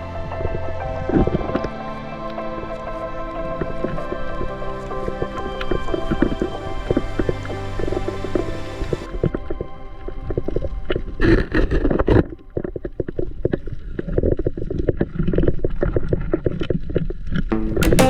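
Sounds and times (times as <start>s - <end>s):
music: 0.0s - 13.2s, 17.5s - 18.0s.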